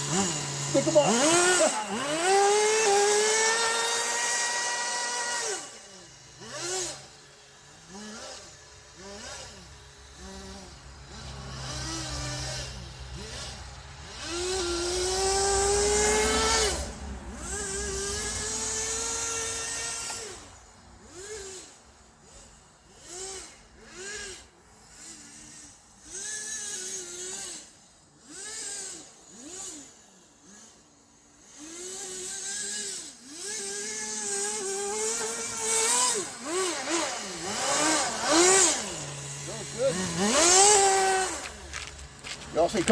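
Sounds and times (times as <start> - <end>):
small nitro engine revving: 0.0 - 42.9.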